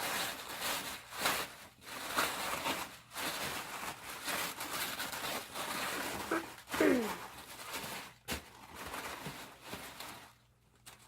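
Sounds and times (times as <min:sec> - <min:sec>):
tissue paper rustling and crinkling: 0:00.0 - 0:11.0.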